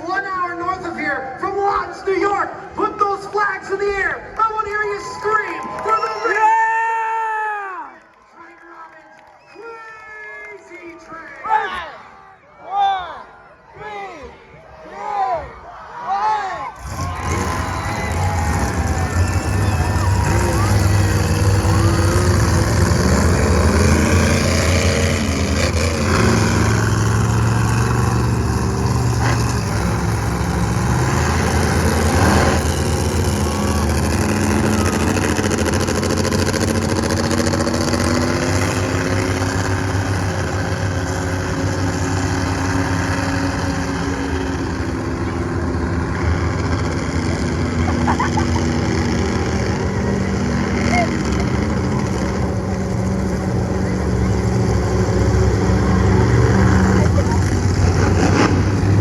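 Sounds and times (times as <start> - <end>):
truck engine revving: 16.7 - 59.0.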